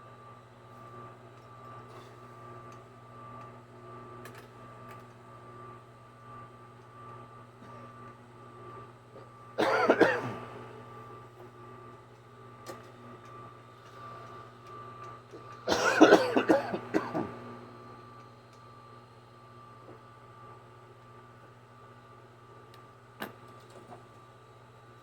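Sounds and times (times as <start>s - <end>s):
person coughing: 9.6s - 10.4s, 15.7s - 17.4s
background hum: 9.6s - 11.2s, 14.0s - 18.2s.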